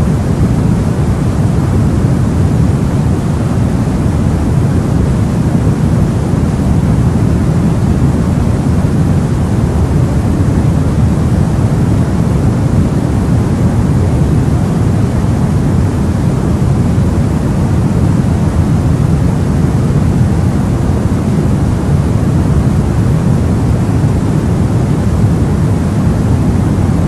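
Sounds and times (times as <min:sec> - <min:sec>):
deep rumbling noise: 0:00.0 - 0:27.0
white noise: 0:00.0 - 0:27.0.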